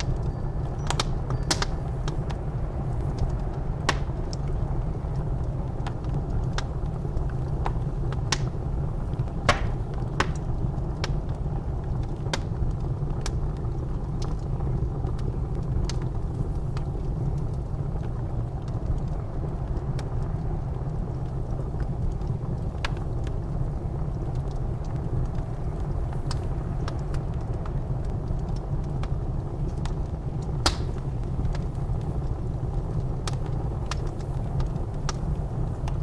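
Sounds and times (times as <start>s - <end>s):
blizzard wind: 0.0s - 36.0s
fire crackling in a fireplace: 0.0s - 36.0s.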